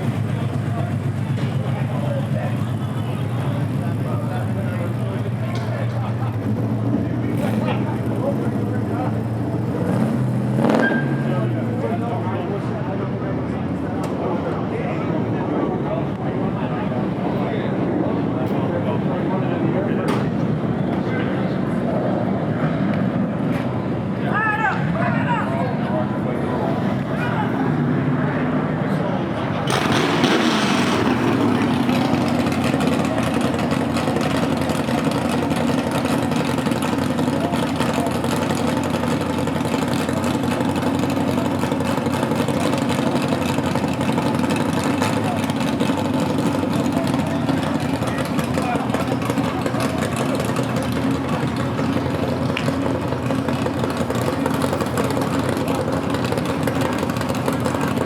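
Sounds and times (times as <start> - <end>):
car engine idling: 0.0 - 58.0
rush of noise: 21.4 - 33.9.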